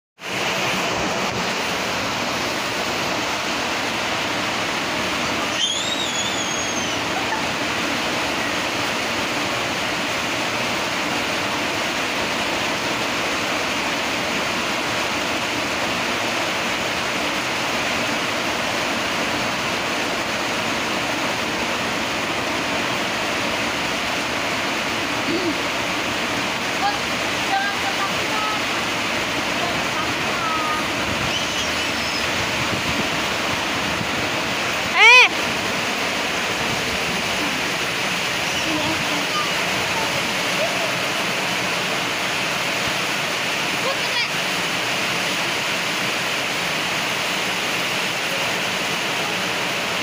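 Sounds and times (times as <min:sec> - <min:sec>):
heavy rain on a road: 0:00.2 - 0:50.0
high squeal: 0:05.5 - 0:07.4, 0:31.2 - 0:32.4.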